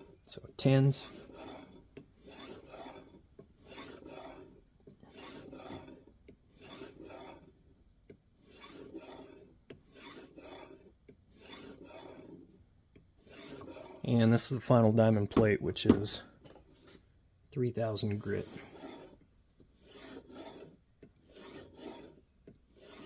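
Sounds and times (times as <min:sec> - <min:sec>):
sharpening plate rasping on blade: 0:01.0 - 0:04.5, 0:05.1 - 0:07.5, 0:08.4 - 0:12.4, 0:13.2 - 0:14.0, 0:18.2 - 0:19.2, 0:19.8 - 0:23.0.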